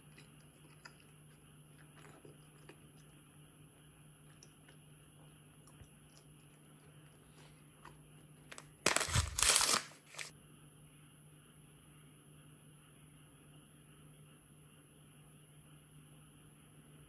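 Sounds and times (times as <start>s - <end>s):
sweet wrappers crinkling: 8.5s - 10.3s.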